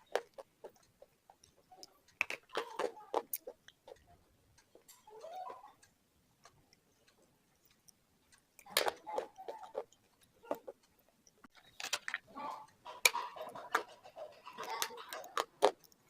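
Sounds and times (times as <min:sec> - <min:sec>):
slate pencil being chewed: 0:00.0 - 0:04.1, 0:06.4 - 0:11.6, 0:12.8 - 0:16.0.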